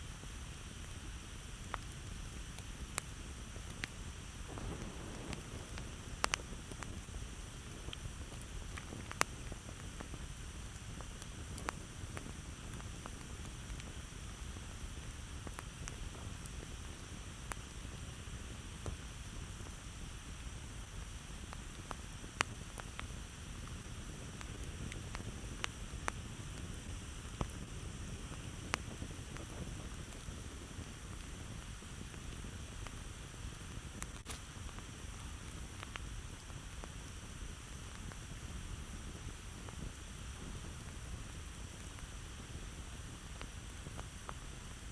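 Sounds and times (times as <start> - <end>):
campfire crackling and popping: 0.0 - 44.9
steady low noise: 1.0 - 21.0.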